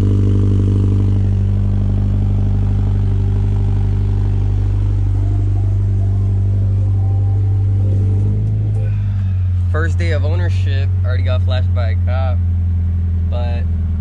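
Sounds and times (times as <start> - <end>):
loud car engine idling: 0.0 - 14.0.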